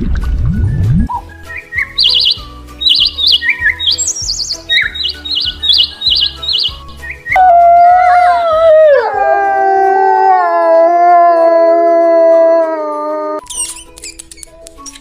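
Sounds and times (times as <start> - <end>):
dog howling: 7.4 - 13.4.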